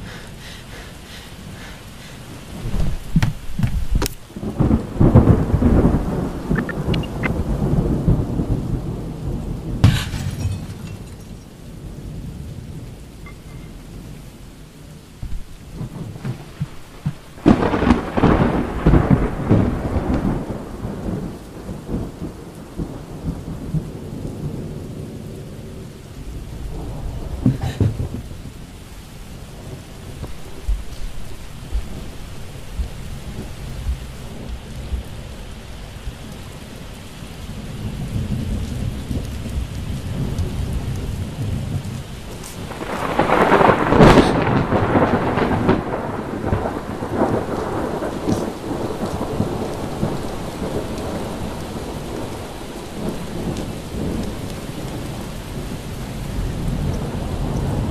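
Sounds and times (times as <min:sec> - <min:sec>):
thunder crack: 0:00.0 - 0:11.4, 0:15.2 - 0:22.2, 0:26.6 - 0:28.7, 0:42.6 - 0:52.4
thunder rolling: 0:00.0 - 0:13.4, 0:15.2 - 0:25.4, 0:26.3 - 0:35.4, 0:37.8 - 0:55.7
steady rain: 0:00.0 - 0:57.9.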